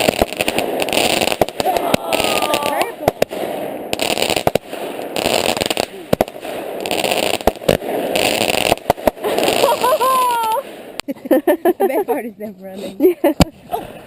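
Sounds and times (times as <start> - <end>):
crackling hiss of fireworks: 0.0 - 11.1
fireworks bangs and pops: 0.0 - 11.1.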